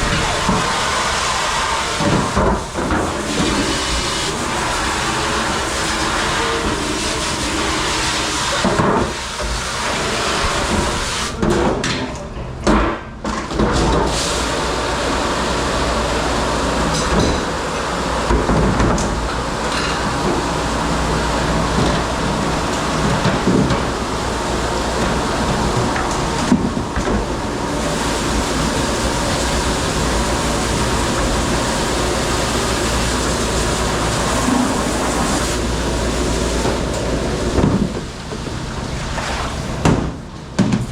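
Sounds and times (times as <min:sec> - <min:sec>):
dish machine spraying and humming: 0:00.0 - 0:11.5, 0:13.7 - 0:40.9
dishes and racks clattering: 0:16.9 - 0:20.7, 0:21.4 - 0:24.0.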